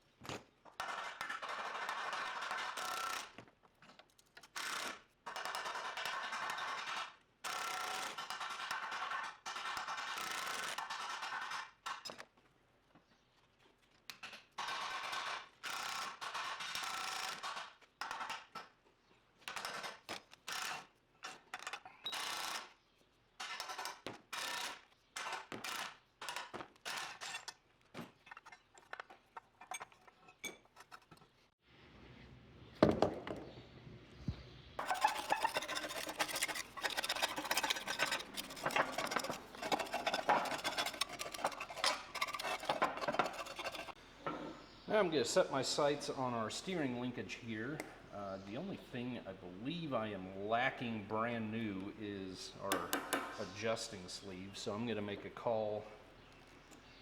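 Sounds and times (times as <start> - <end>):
metal tools clanking and scraping: 27.0 - 31.4, 34.8 - 44.5.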